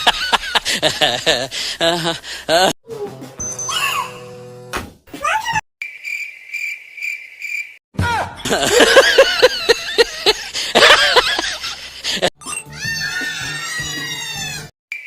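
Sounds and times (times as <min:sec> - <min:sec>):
cricket chirping: 0:05.8 - 0:07.8.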